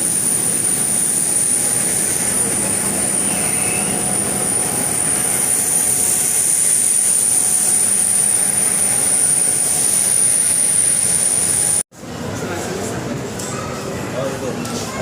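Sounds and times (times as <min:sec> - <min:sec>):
jet engines rushing: 0:00.0 - 0:11.8
thin high whine: 0:00.0 - 0:11.8.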